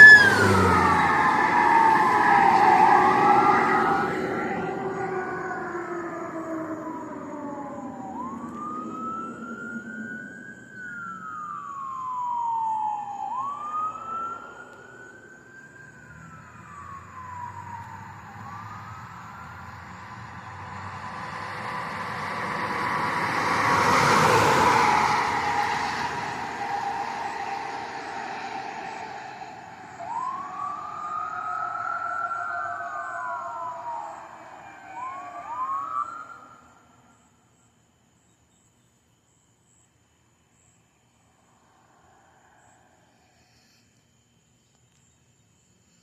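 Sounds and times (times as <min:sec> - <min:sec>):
vehicle passing by: 0:00.0 - 0:07.1, 0:07.8 - 0:36.6
emergency vehicle wail siren: 0:00.0 - 0:37.3.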